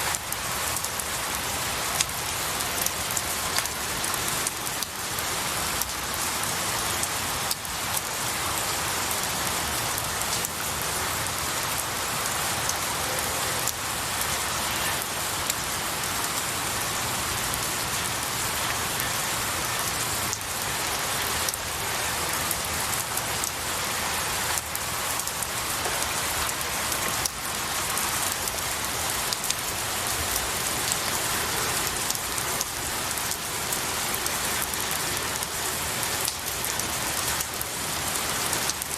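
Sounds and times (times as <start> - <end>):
individual raindrops: 0.0 - 38.9
rain falling on pine needles: 0.0 - 38.9.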